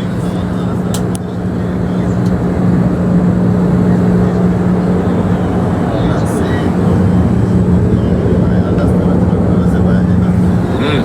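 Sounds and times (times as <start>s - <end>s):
jet cabin drone: 0.0s - 11.0s.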